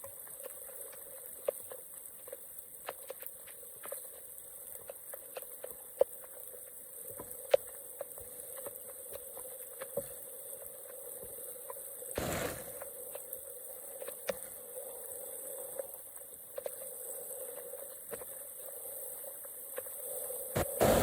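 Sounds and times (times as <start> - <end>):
water splashing: 12.2 - 12.8.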